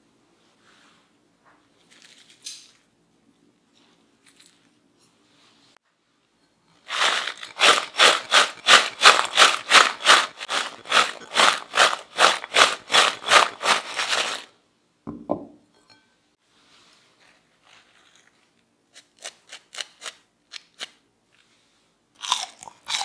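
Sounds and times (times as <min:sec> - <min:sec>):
fried potatoes rattling when shaken: 0:06.9 - 0:14.5.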